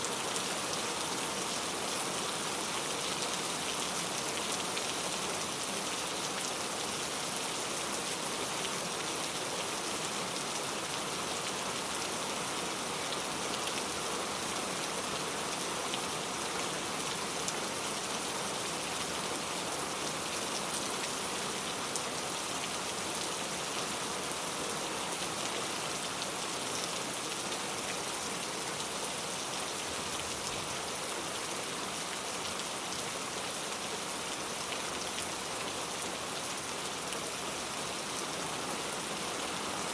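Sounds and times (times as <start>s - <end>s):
rain patter: 0.0s - 39.9s.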